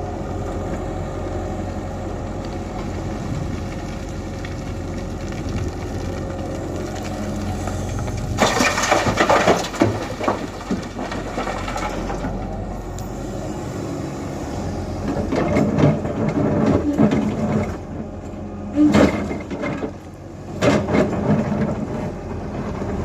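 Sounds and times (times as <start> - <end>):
excavator diesel engine running: 0.0 - 23.0
load tipped into truck bed: 8.3 - 12.4.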